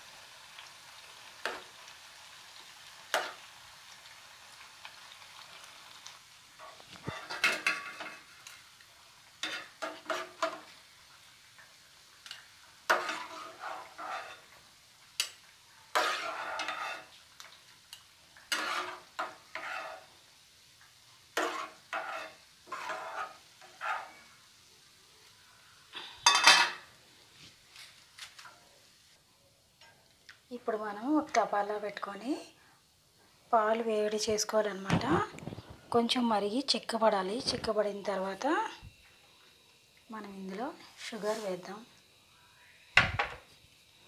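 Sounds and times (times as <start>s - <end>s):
bread sizzling in hot oil: 0.0s - 44.0s
steel ladle scraping and clinking: 16.0s - 17.1s, 18.5s - 20.1s.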